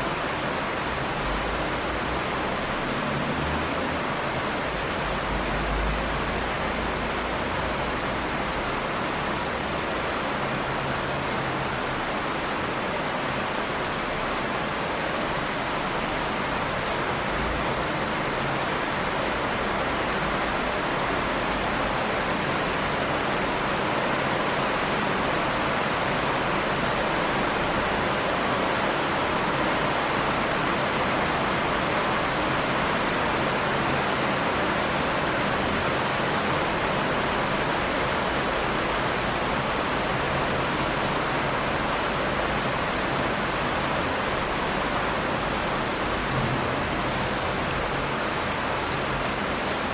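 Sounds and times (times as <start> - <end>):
steady dense rain: 0.0 - 49.9.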